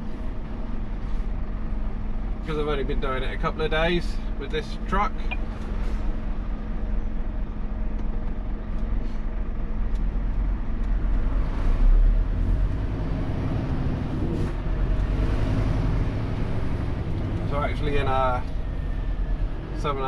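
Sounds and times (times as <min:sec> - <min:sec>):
truck engine and road noise: 0:00.0 - 0:20.0.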